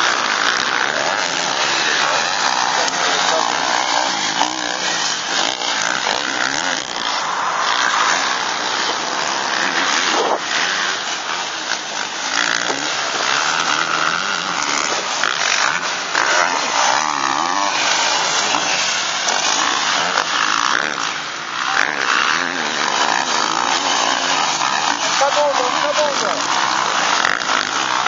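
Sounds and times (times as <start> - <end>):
motocross bike engines revving: 0.0 - 28.0.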